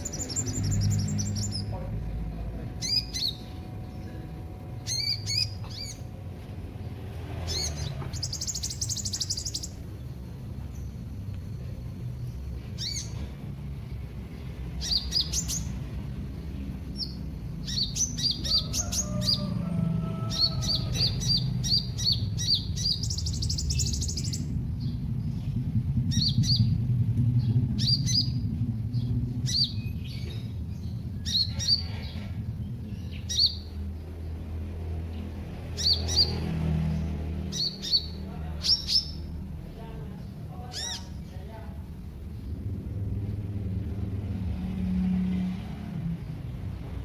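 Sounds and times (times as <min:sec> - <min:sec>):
buzzy bird trill: 0:00.0 - 0:01.7, 0:02.7 - 0:11.1, 0:12.2 - 0:13.2, 0:14.7 - 0:26.8
small bird chirping: 0:00.0 - 0:01.9, 0:02.6 - 0:04.2, 0:04.8 - 0:06.5, 0:07.4 - 0:19.6, 0:20.3 - 0:34.1, 0:35.6 - 0:36.5, 0:37.4 - 0:39.5, 0:40.2 - 0:41.6
steady low hum: 0:00.0 - 0:35.8, 0:37.0 - 0:47.0.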